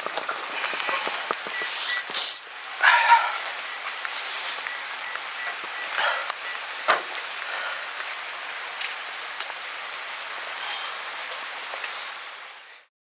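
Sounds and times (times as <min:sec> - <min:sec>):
bonfire crackling and popping: 0:00.0 - 0:02.5.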